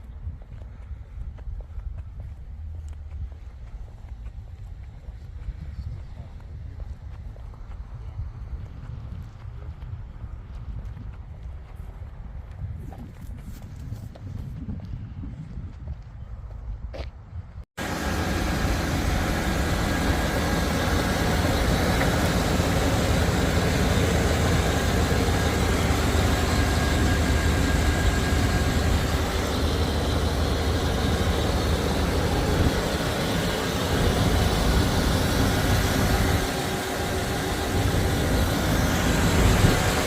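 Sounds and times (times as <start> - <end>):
car engine running: 17.8 - 40.0.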